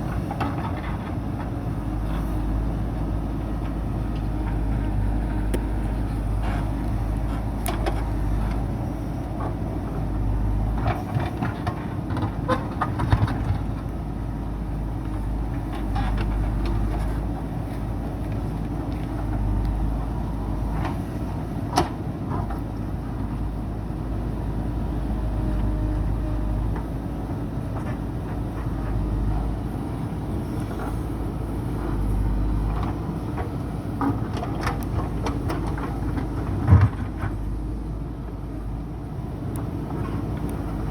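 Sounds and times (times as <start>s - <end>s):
diesel engine under load: 0.0s - 40.9s.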